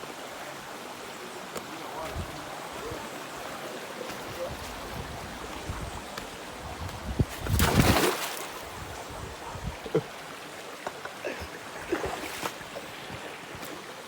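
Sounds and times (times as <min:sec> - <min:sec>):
loud water splashing: 0:07.4 - 0:08.8.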